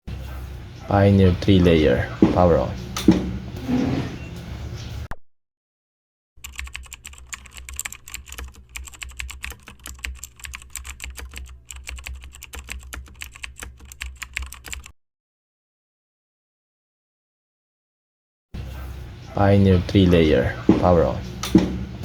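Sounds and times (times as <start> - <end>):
steady low hum: 0.1 - 5.1, 18.6 - 22.0
rapid irregular clicking: 6.4 - 14.9.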